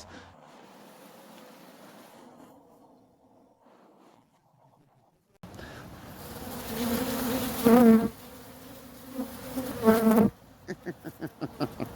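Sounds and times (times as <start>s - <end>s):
bee buzzing close by: 6.0s - 11.8s
bees buzzing: 6.0s - 11.9s.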